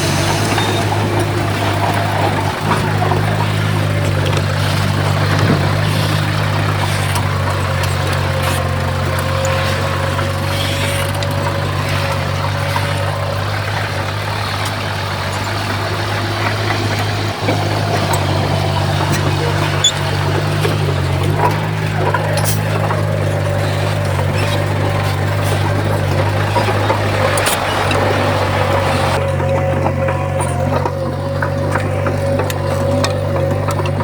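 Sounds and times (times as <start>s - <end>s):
heavy diesel engine humming: 0.0s - 34.0s.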